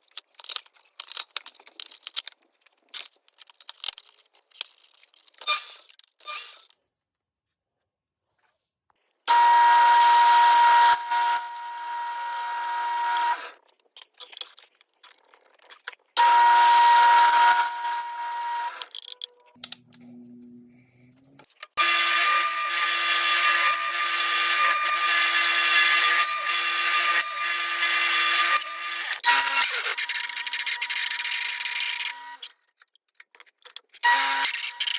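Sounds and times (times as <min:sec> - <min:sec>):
high-speed electric power tool: 0:09.3 - 0:13.6, 0:16.2 - 0:18.9, 0:21.8 - 0:32.4, 0:34.0 - 0:34.9.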